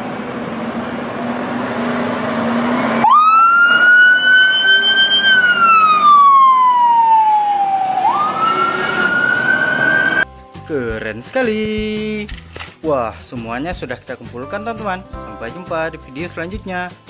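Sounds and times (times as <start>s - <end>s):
fire truck siren wailing: 2.1s - 10.2s.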